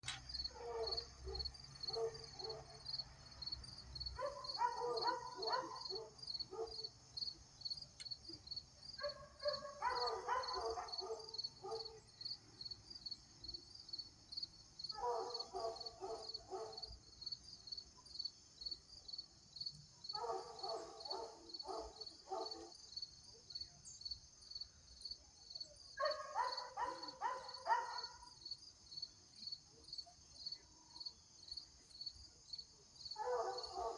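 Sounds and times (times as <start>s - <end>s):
insects chirping: 0.1s - 33.9s
dog barking: 0.5s - 2.9s, 4.1s - 6.9s, 9.0s - 12.0s, 14.9s - 17.0s, 20.1s - 22.8s, 25.9s - 28.4s, 33.2s - 33.9s.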